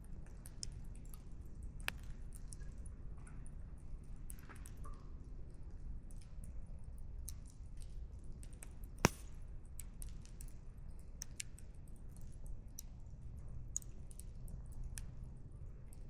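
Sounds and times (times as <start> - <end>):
campfire crackling: 9.0 - 9.4
loud firewood pop: 9.0 - 9.4.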